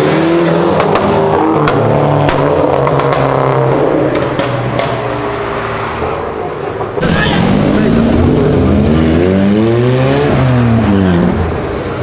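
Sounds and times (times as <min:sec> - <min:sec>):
car engine accelerating: 0:07.0 - 0:12.0.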